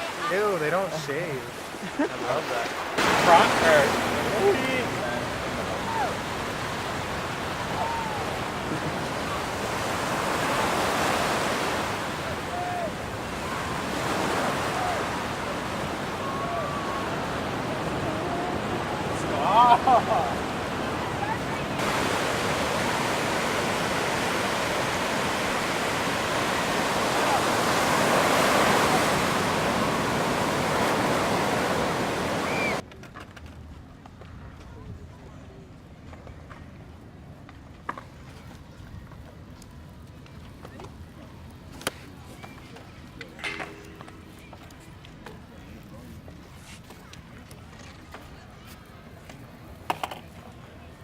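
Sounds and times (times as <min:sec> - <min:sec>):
ocean surf on beach: 0:00.0 - 0:32.8, 0:41.4 - 0:47.0.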